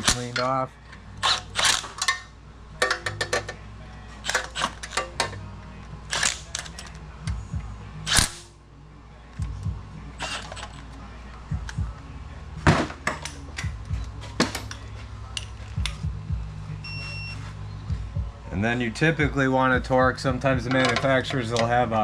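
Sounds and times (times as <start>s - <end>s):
steady low hum: 0.0s - 22.0s
hand ratchet clicking: 10.2s - 10.8s.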